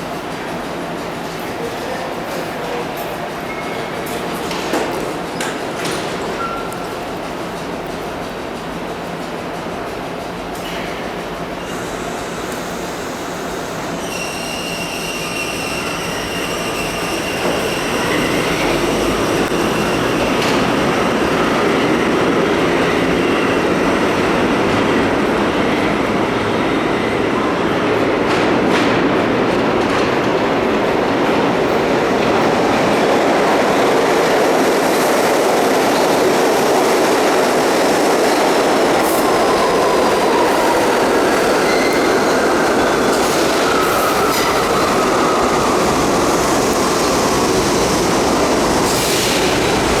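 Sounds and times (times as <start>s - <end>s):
subway train wheels clacking: 0.0s - 50.0s
wheel squeal: 14.0s - 18.9s, 39.2s - 45.9s.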